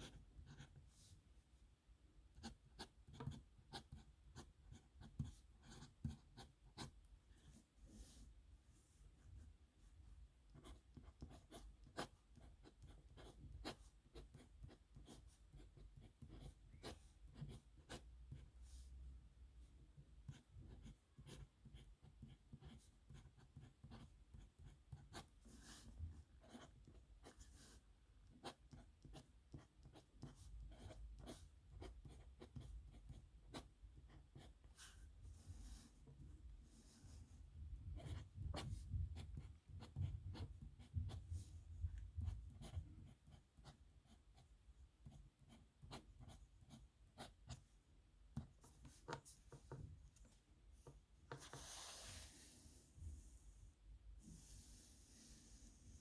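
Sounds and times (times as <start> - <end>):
pen scratching on paper: 0.0 - 0.9, 2.4 - 8.2, 10.5 - 18.5, 20.2 - 35.0, 37.8 - 41.4, 42.0 - 47.6, 51.3 - 52.3.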